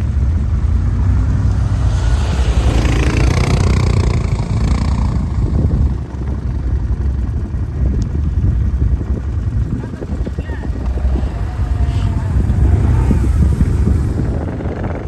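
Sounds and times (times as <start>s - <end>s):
quad bike engine rumbling: 0.0s - 15.0s
rushing noise: 0.4s - 7.7s, 9.9s - 15.0s.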